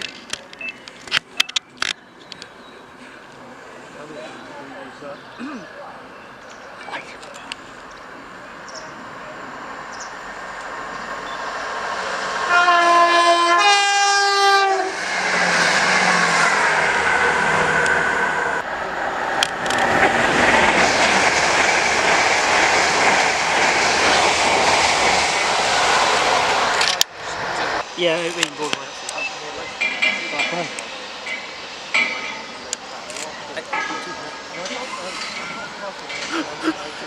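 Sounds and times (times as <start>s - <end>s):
train rumble and wheel clatter: 0.0s - 37.0s
two-note train horn: 12.5s - 15.0s.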